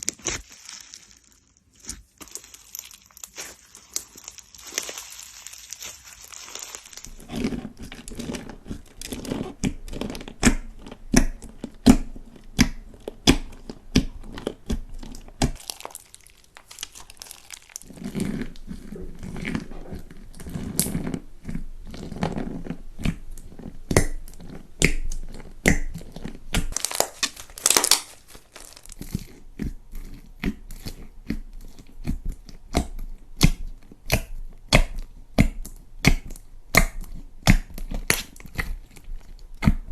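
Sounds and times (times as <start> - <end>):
slime crackling and squelching: 0.0 - 39.9.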